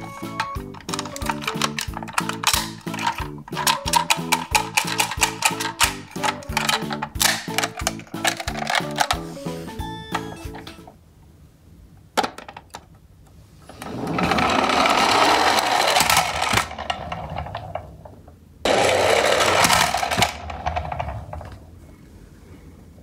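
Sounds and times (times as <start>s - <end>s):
toy truck wheels whirring: 0.0s - 10.7s, 13.7s - 17.7s, 18.7s - 21.4s.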